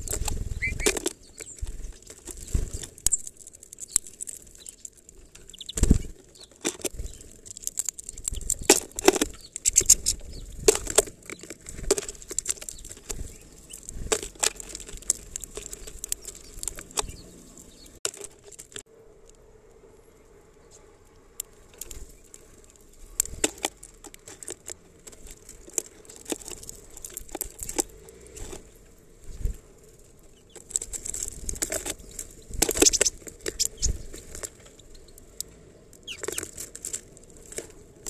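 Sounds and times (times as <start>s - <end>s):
bird wingbeats: 0.0s - 3.1s, 5.5s - 6.2s, 30.9s - 34.6s
birds tapping on plastic feeder: 0.0s - 7.4s, 30.4s - 36.7s.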